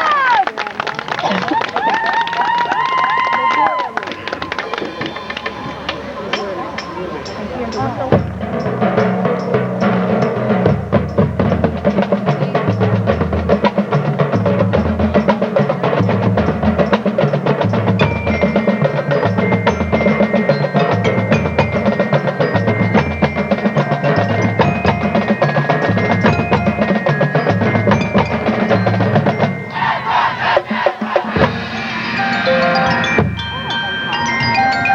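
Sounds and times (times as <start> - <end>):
high ringing bell notes: 4.6 - 11.3, 14.9 - 34.9
rapid drum strokes: 4.6 - 34.9
pitched bass drum notes: 5.1 - 34.2.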